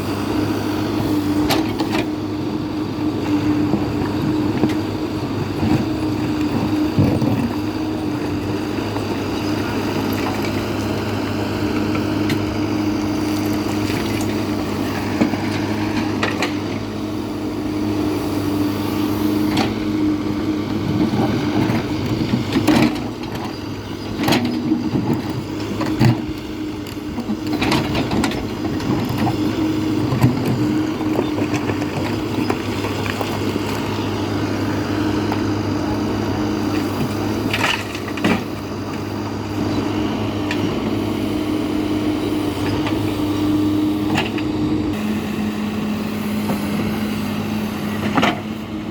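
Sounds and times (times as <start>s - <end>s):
diesel engine running under load: 0.0s - 48.9s
clunks and knocks: 20.7s - 33.8s.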